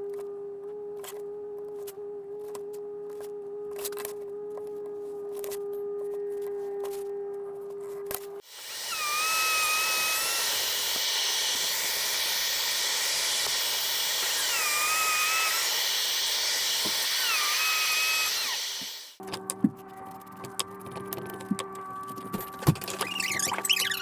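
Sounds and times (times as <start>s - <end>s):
power tool whirring: 8.4s - 19.2s.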